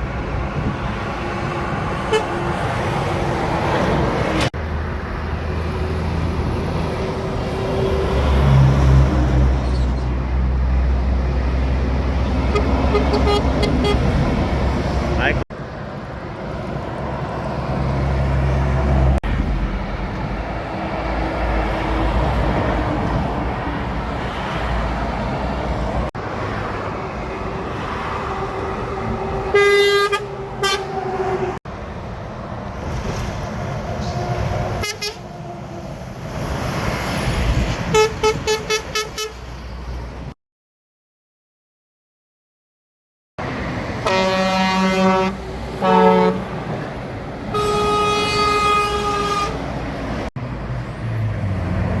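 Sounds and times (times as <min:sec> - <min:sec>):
trucks passing on highway: 0:00.0 - 0:40.4, 0:43.4 - 0:52.0
truck horn blasts: 0:02.0 - 0:02.6, 0:12.4 - 0:14.2, 0:29.5 - 0:31.5, 0:34.8 - 0:35.3, 0:37.9 - 0:39.4, 0:44.0 - 0:46.6, 0:47.5 - 0:49.7.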